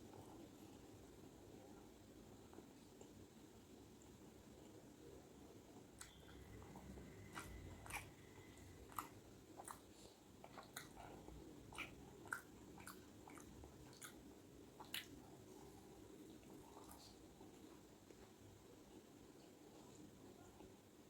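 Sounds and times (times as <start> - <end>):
person chewing food: 6.0 - 15.5.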